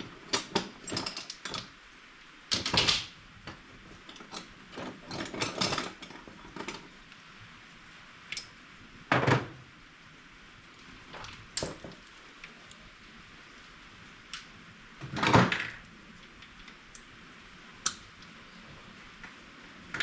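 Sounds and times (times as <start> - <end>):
metal tools clinking: 2.5 - 3.1.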